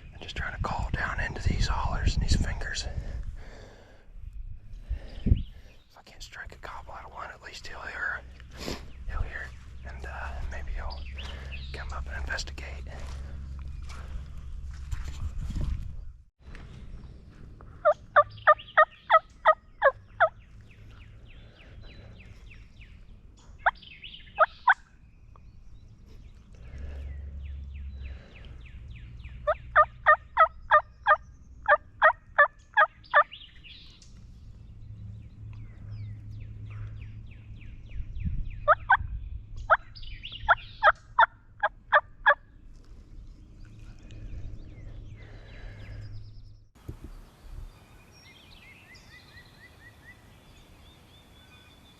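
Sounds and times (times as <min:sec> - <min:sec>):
turkey call yelps: 0:29.5 - 0:31.8.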